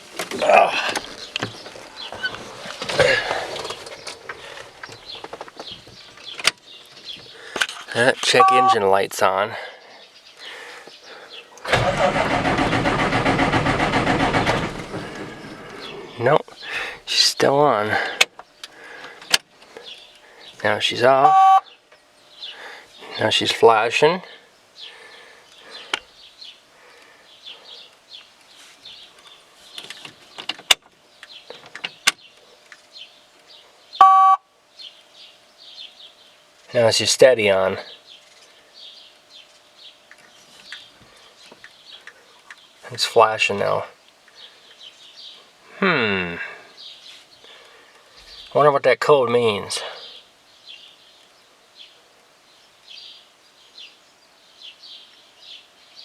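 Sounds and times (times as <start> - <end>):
small birds chirping: 0.0 - 11.7, 14.7 - 56.0
loud buzzing beep: 8.4 - 8.8, 21.2 - 21.6, 34.0 - 34.4.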